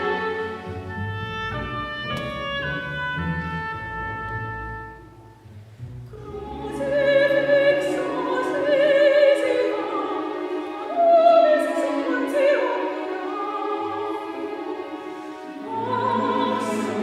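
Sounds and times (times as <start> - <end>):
chamber orchestra: 0.0 - 17.0
choir singing with vibrato: 6.2 - 17.0.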